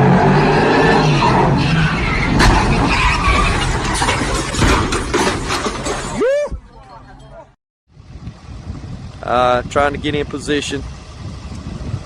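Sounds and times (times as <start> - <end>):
vehicle engine running hard: 7.9 - 12.0.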